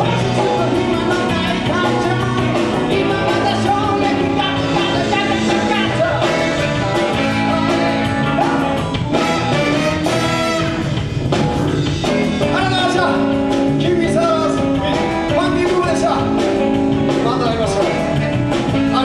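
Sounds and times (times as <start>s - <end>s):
person singing: 0.0s - 9.5s
live band playing: 0.0s - 19.0s.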